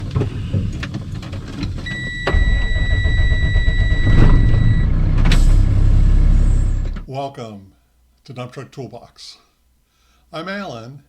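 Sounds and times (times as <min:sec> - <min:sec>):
diesel engine starting: 0:01.7 - 0:07.1
high warning tone: 0:01.9 - 0:07.0.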